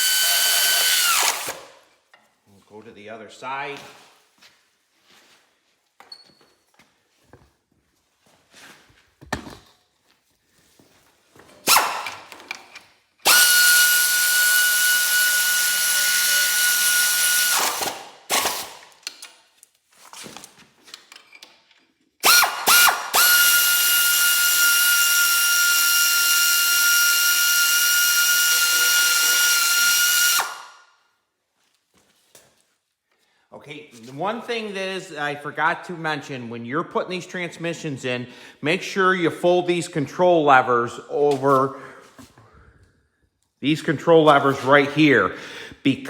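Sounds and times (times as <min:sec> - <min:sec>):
pneumatic wrench whining: 0:00.0 - 0:01.8, 0:11.6 - 0:12.4, 0:13.2 - 0:18.9, 0:22.2 - 0:30.8.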